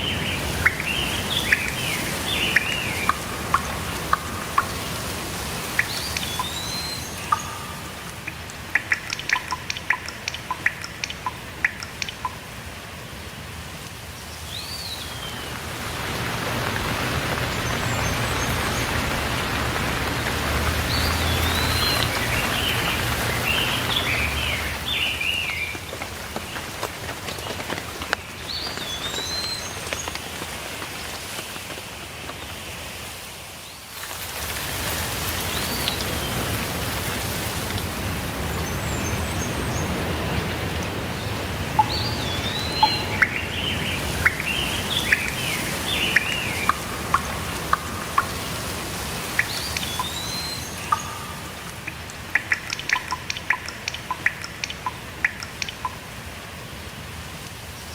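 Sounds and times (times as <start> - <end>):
bird chirping: 0.0 - 12.4, 20.6 - 26.0, 41.2 - 56.0
single raindrops ticking: 0.0 - 13.0, 14.9 - 32.6, 34.0 - 56.6
steady rainfall: 0.0 - 57.9
bird whistling: 41.8 - 55.5.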